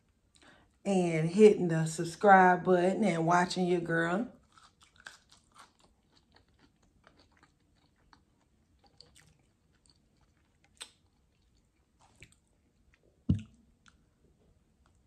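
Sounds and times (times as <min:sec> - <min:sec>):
chewing fries: 0:04.3 - 0:15.0
soft mouth clicks and smacks: 0:08.8 - 0:14.0
short thump: 0:13.3 - 0:13.5.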